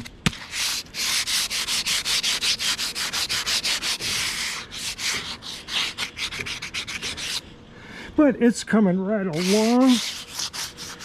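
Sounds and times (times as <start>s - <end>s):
abrasive rubbing on metal: 9.3s - 11.0s.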